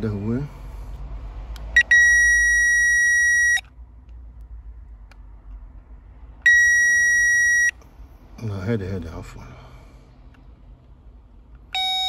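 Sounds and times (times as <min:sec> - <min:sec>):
electronic beep: 0:01.8 - 0:03.6, 0:06.5 - 0:07.8.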